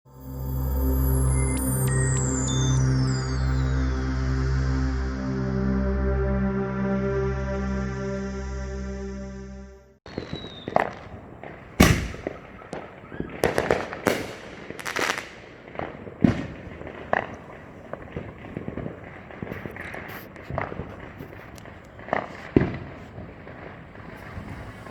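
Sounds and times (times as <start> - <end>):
fireworks bangs and pops: 10.1 - 24.9.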